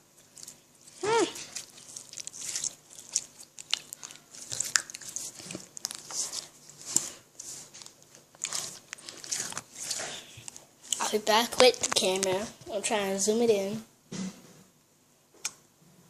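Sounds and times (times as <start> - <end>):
slime squished by hand: 0.1 - 12.3.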